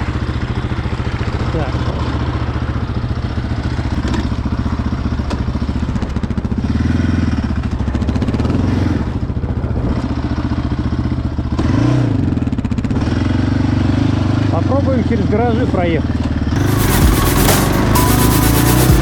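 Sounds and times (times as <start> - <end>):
atv engine revving: 6.5 - 9.2, 11.5 - 14.6.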